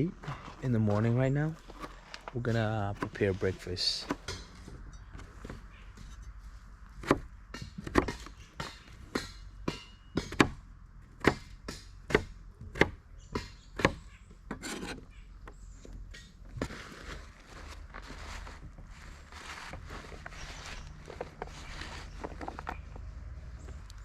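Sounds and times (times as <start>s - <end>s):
chopping wood: 4.0s - 4.6s, 7.0s - 10.6s, 11.2s - 15.0s.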